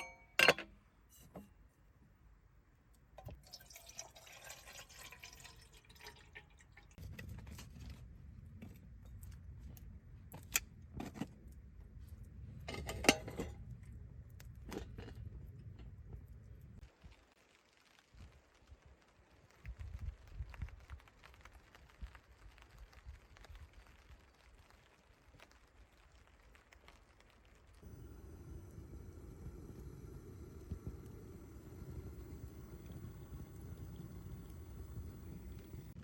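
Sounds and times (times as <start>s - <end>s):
camp cookware clinking: 0.0s - 0.8s, 12.7s - 13.6s, 27.8s - 35.9s
liquid pouring: 3.2s - 7.0s, 27.8s - 36.0s
low steady background noise: 26.1s - 36.0s.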